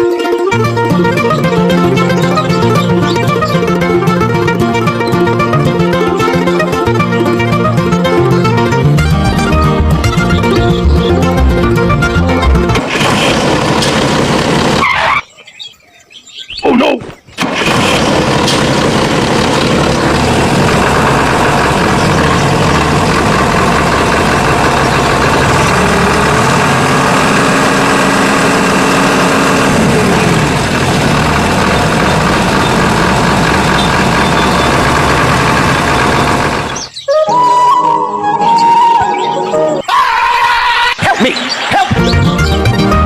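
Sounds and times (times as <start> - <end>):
small juicer motor running: 17.4 - 36.9.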